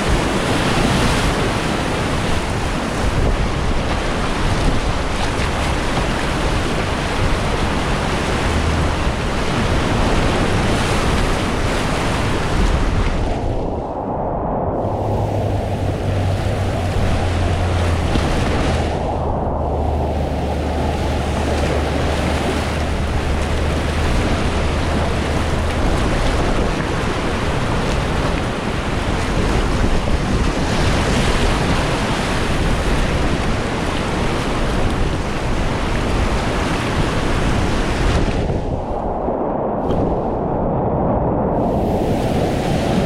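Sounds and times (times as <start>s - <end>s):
wind buffeting microphone: 0.0s - 43.0s
whitewater rapids rushing: 14.8s - 29.8s.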